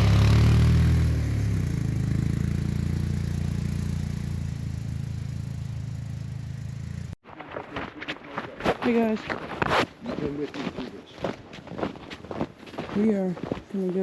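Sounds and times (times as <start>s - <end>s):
small gasoline engine running: 0.0s - 7.2s.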